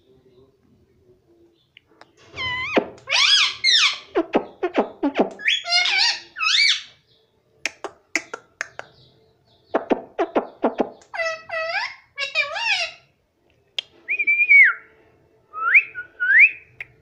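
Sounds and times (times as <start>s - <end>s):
parrot whistling squawks: 2.4s - 4.1s, 5.4s - 6.9s
parrot clicks and chirps: 7.7s - 9.0s.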